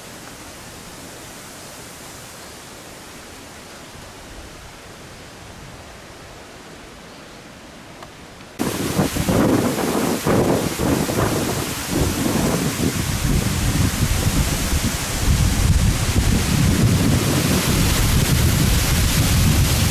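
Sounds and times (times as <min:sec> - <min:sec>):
wind and rain hiss: 0:00.0 - 0:19.9
gusting wind buffeting microphone: 0:08.6 - 0:19.9.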